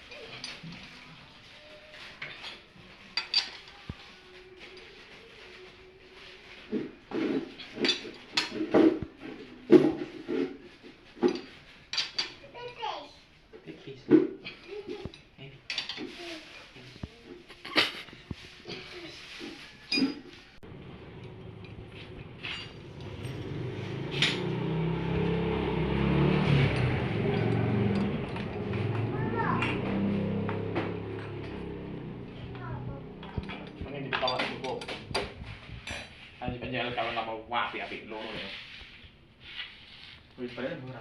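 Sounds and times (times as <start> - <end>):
motor vehicle engine running: 20.6 - 36.4
metallic clinks of engine parts: 21.1 - 25.5, 26.6 - 28.6.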